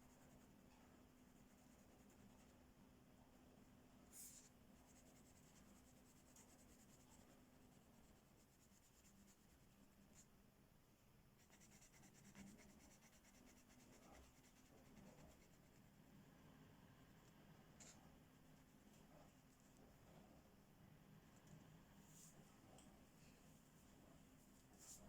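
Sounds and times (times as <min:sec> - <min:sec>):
coloring tool scratching on paper: 0:11.4 - 0:15.8.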